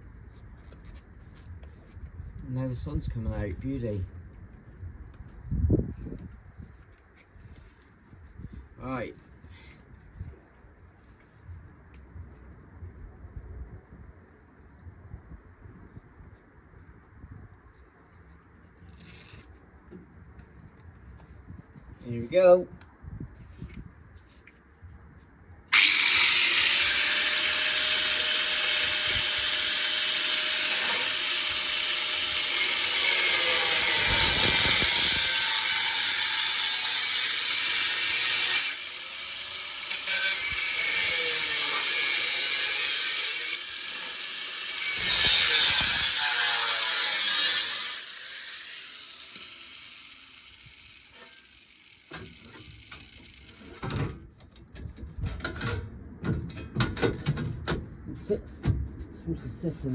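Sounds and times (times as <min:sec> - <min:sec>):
power tool cutting sheet steel: 0:25.7 - 0:53.9.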